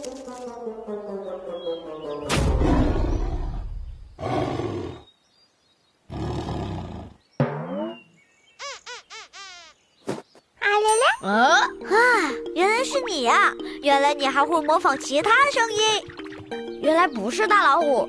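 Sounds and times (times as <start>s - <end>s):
bird mimicking tiger roars: 4.2s - 5.1s, 6.1s - 7.2s
bird chirps: 7.2s - 11.3s, 14.4s - 17.8s.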